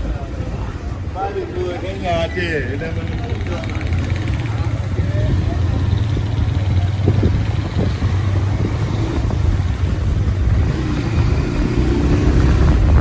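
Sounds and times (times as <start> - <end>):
wind and road noise: 0.0 - 13.0
motorcycle engine running: 2.9 - 13.0.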